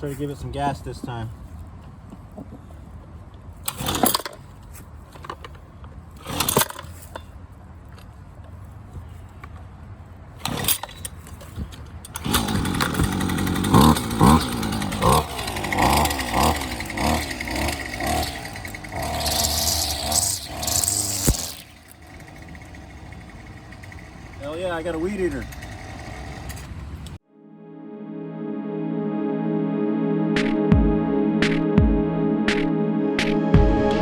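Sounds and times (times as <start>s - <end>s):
string trimmer engine pull-started: 3.6s - 4.6s, 6.2s - 7.3s, 10.4s - 27.2s
string trimmer engine revving: 6.2s - 6.9s, 10.5s - 11.0s, 12.1s - 27.2s.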